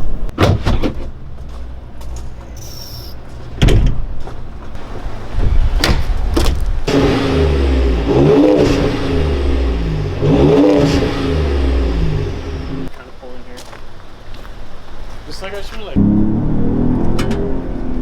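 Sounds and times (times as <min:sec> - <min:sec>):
truck engine accelerating: 0:04.2 - 0:12.9, 0:15.9 - 0:18.0.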